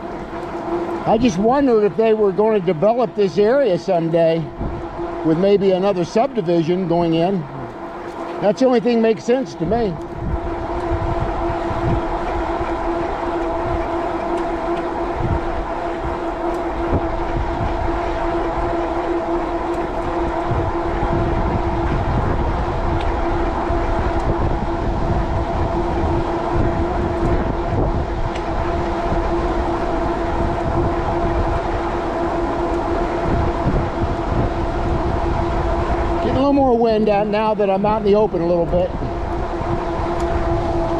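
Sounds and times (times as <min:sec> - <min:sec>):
electric bike motor whine: 0:00.0 - 0:40.9
wind rumbling on microphone: 0:00.0 - 0:40.9.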